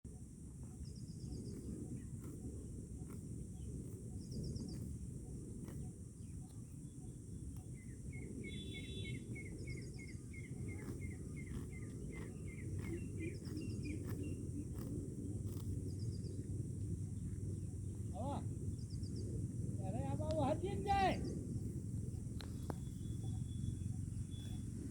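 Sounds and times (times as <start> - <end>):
rapid repeated bird calls: 3.0 - 16.5, 20.9 - 24.9
birds trilling: 7.7 - 14.9, 20.4 - 24.9
low rumble: 9.2 - 24.9.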